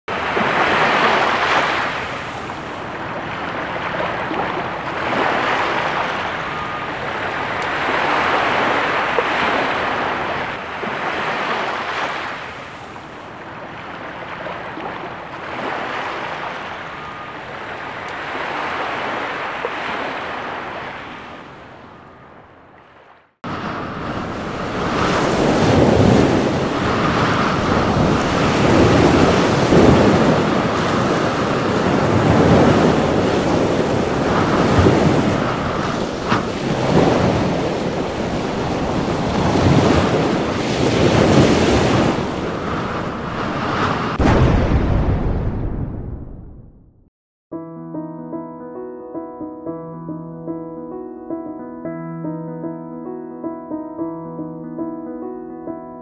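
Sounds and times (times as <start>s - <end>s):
waves washing in: 0.1s - 22.1s, 22.8s - 46.4s
wind noise: 23.5s - 46.8s.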